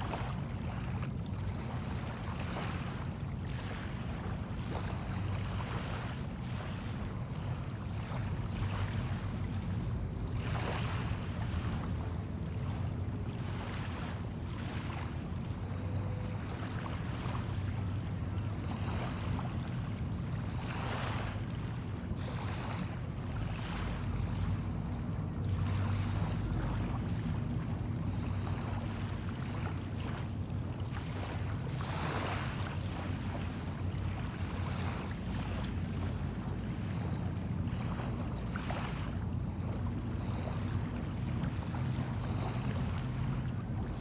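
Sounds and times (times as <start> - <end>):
small waves washing onto shore: 0.0 - 44.0
low engine drone: 11.1 - 20.6, 21.2 - 31.8.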